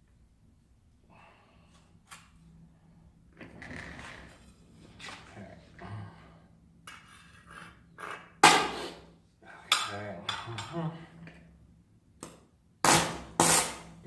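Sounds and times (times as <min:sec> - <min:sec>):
welding rod scratching steel: 0:12.9 - 0:14.0.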